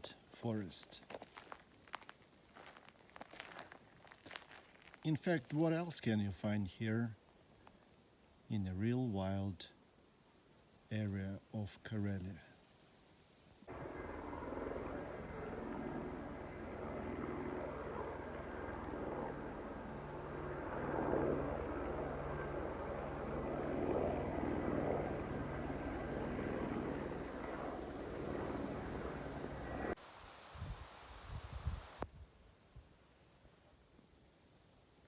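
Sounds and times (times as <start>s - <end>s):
engine drone: 13.7s - 30.0s.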